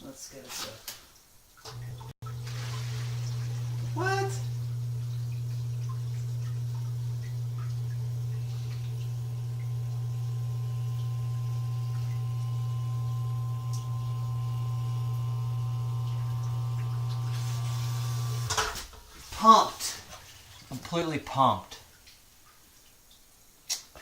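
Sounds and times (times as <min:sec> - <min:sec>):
pump motor humming: 0:01.6 - 0:18.7.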